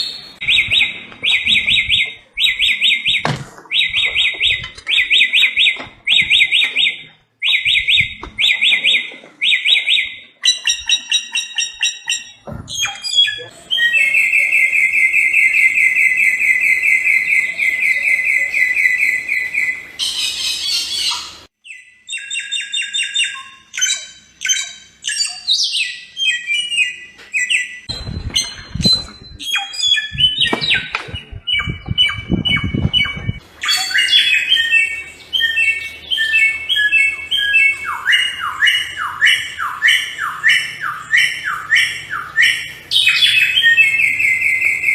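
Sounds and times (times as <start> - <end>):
bird singing trills and whistles: 0.0 - 44.9
low rumble: 27.9 - 29.4.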